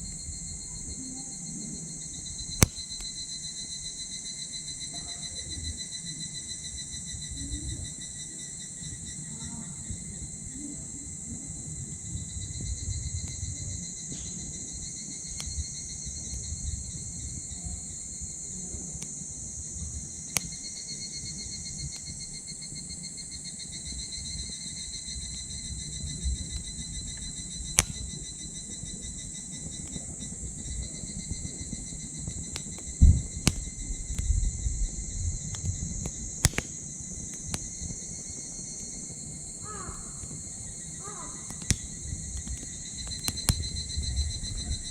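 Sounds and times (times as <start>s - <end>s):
insects trilling: 0.0s - 44.9s
fire sharp pops: 1.8s - 4.1s, 12.1s - 44.9s
wood fire crackling: 1.8s - 4.7s, 12.0s - 44.9s.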